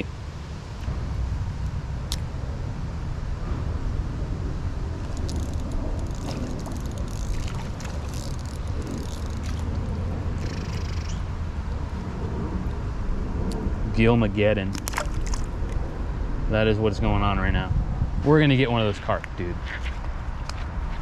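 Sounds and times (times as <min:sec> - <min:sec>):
river water rumbling: 0:00.0 - 0:17.4
water splashes and trickles: 0:04.8 - 0:11.2, 0:14.5 - 0:16.0.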